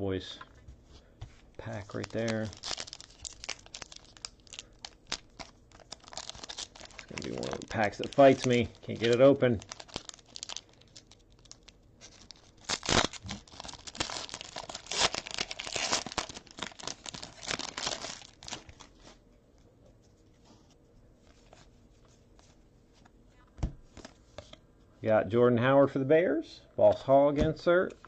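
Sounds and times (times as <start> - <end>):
cards rustling: 1.3 - 19.2
wrapper tearing and crinkling: 1.6 - 18.9.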